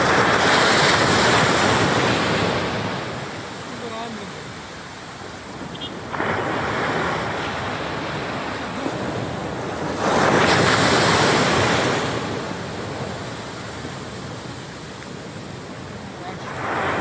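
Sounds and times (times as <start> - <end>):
ocean surf washing onto beach: 0.0 - 17.0
wave breaking: 5.8 - 13.4.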